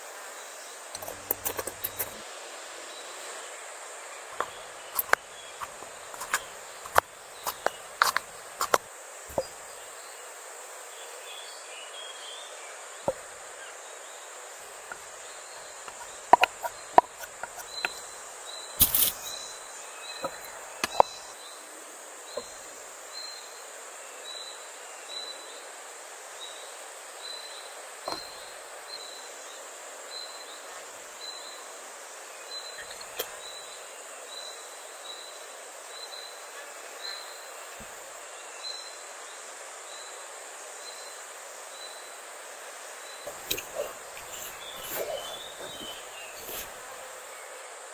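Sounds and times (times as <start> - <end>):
steady high hiss: 0.0 - 47.9
sharp clicks and knocks: 1.0 - 2.2, 4.4 - 9.5, 15.9 - 18.1, 18.8 - 19.4.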